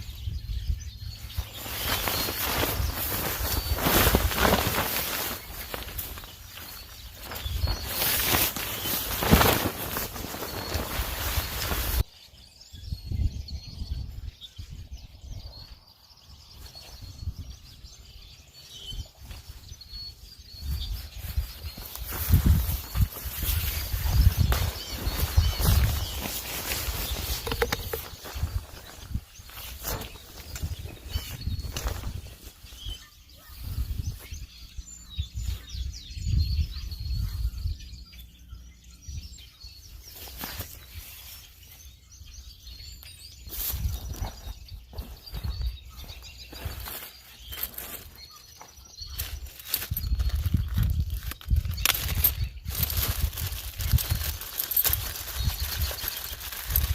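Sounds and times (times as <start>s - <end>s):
small birds chirping: 0.0s - 56.9s
sharp rustle: 1.1s - 12.1s, 19.0s - 34.4s, 40.0s - 41.8s, 42.9s - 56.9s.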